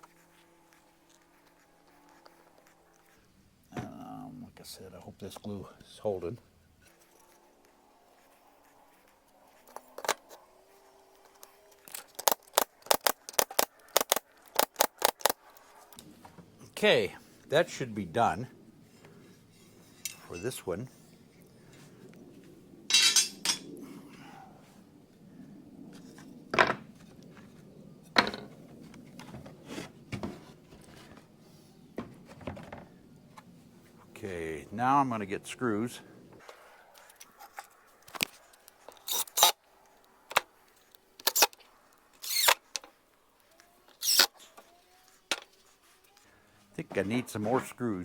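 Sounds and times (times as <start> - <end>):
sharp clicks: 11.9 - 15.4
wood rubbing: 42.2 - 42.6, 44.0 - 44.3.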